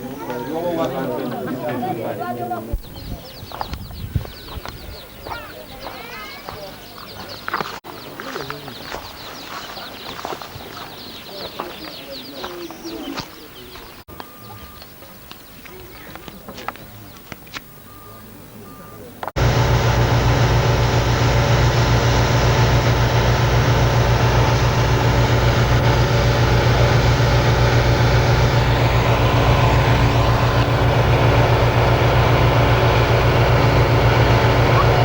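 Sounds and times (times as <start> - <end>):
engine droning: 19.4 - 35.0.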